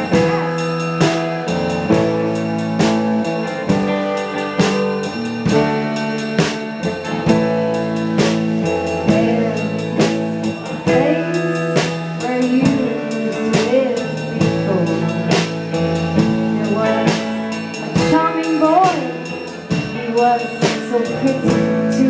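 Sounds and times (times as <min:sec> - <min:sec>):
drum kit hits: 0:00.0 - 0:20.8
electric guitar chords: 0:00.0 - 0:22.0
person singing: 0:08.6 - 0:22.0.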